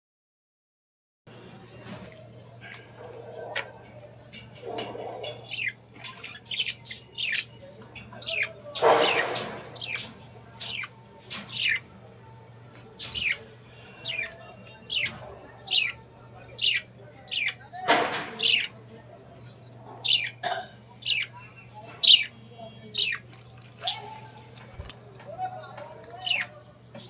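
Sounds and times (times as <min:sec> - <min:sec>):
budgerigars chirping: 0:02.7 - 0:12.0, 0:13.0 - 0:18.8, 0:19.4 - 0:24.3, 0:26.1 - 0:26.6.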